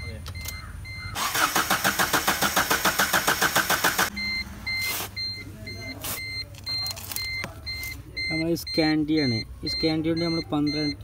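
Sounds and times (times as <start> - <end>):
car engine cranking: 0.3 - 5.3
high beeps: 4.1 - 11.0.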